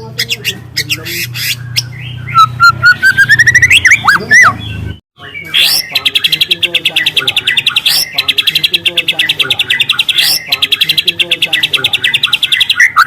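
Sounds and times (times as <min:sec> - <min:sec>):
bird singing whistled notes and trills: 0:00.0 - 0:13.0.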